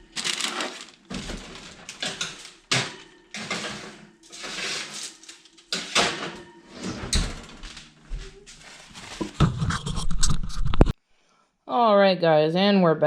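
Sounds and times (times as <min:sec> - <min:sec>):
rustling: 0:00.0 - 0:02.6, 0:07.6 - 0:10.7
kitchen knocks and clatters: 0:00.1 - 0:11.0.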